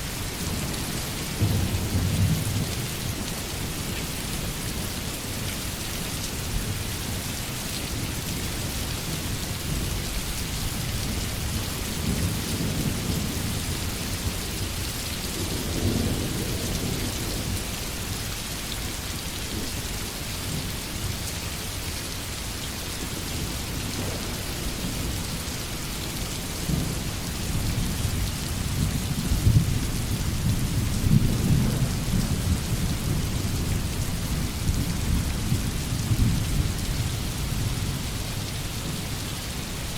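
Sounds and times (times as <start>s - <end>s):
heavy rain: 0.0s - 39.9s
low rolling thunder: 26.6s - 38.1s.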